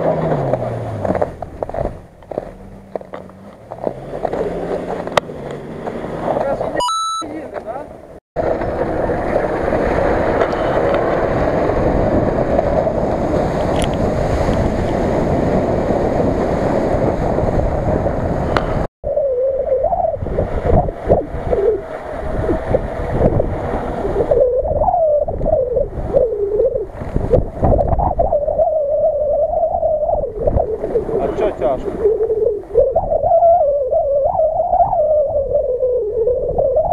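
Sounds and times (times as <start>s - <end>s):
vehicle driving noise and wind roar: 0.0s - 36.9s
wavering tone: 6.8s - 7.3s.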